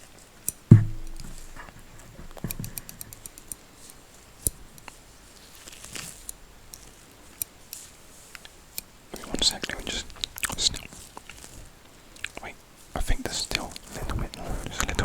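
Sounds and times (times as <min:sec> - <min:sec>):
scissors snipping: 0:00.4 - 0:09.5
soft knock: 0:00.7 - 0:02.8.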